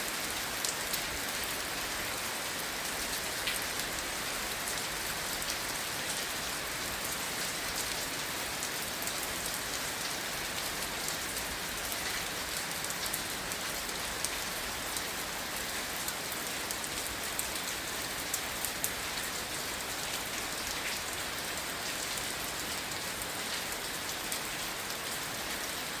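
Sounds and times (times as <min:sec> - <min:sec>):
rain falling on grass: 0:00.0 - 0:26.0.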